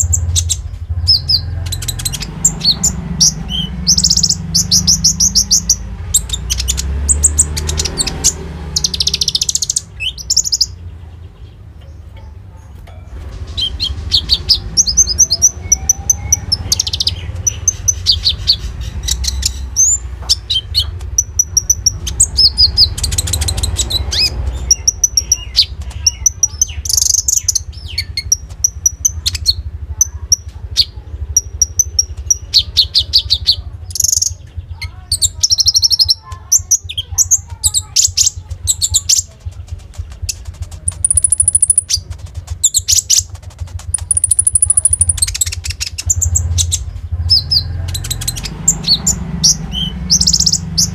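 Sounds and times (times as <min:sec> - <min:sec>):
songbird singing rapid chattering song: 0:00.0 - 0:50.9
thin high whistled bird notes: 0:41.0 - 0:42.0.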